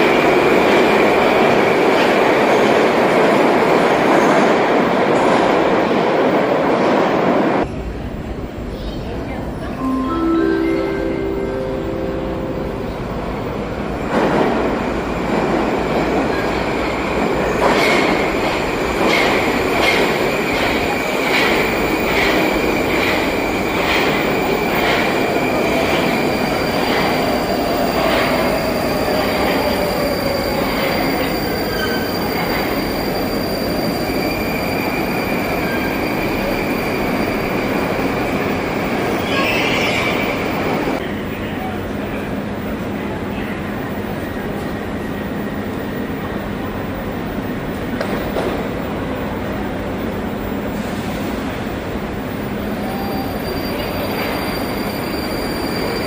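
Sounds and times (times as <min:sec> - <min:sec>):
high wheel squeal: 0:28.3 - 0:37.6, 0:52.7 - 0:56.0.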